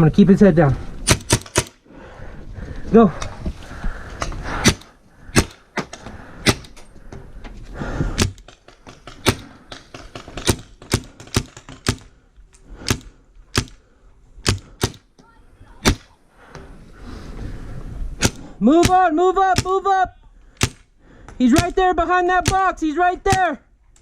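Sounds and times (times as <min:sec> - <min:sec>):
paintball marker firing shots: 0:01.0 - 0:01.8, 0:04.5 - 0:06.8, 0:08.2 - 0:12.1, 0:12.8 - 0:13.8, 0:14.4 - 0:15.1, 0:15.8 - 0:16.2, 0:18.2 - 0:19.0.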